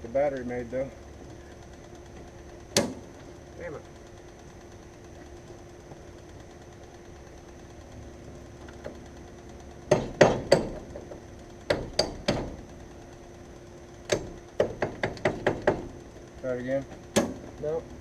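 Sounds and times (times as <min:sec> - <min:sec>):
hammer knocks: 0:09.9 - 0:10.8.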